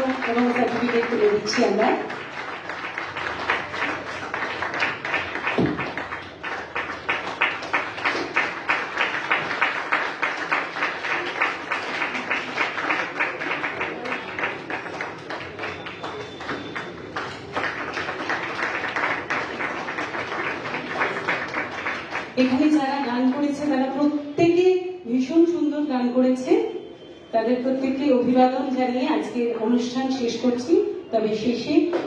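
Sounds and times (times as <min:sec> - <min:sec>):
audience applauding: 0:00.0 - 0:22.6.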